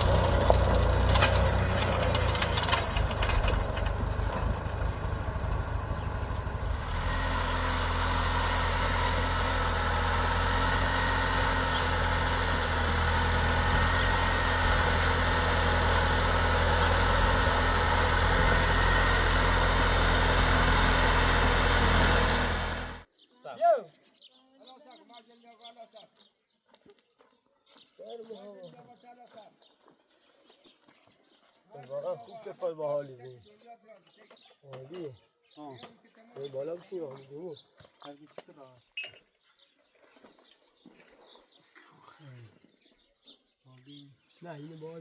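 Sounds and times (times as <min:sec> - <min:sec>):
engine running: 0:00.0 - 0:23.1.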